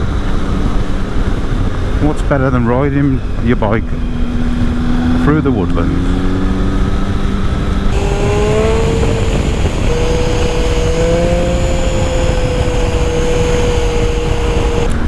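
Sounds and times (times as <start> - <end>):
wind and road noise: 3.2 - 15.0
motorcycle engine accelerating: 7.6 - 15.0.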